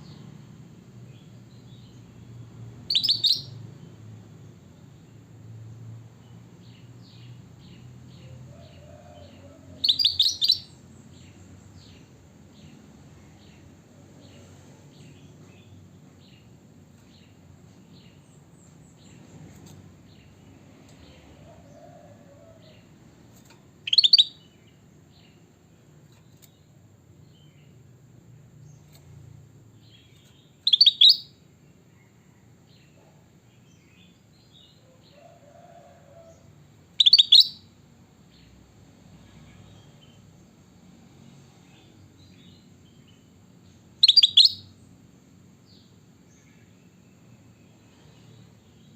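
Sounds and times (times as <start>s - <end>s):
bulbul high chirping calls: 2.9s - 3.6s, 9.8s - 10.7s, 23.8s - 24.4s, 30.7s - 31.4s, 37.0s - 37.6s, 44.0s - 44.7s
faint bird twittering: 2.9s - 3.6s, 9.8s - 11.4s, 23.8s - 24.4s, 30.0s - 31.4s, 37.0s - 37.6s, 44.0s - 44.7s.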